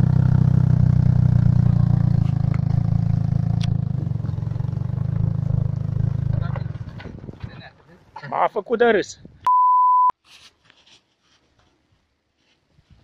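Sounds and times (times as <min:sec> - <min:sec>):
small car engine running: 0:00.0 - 0:07.1.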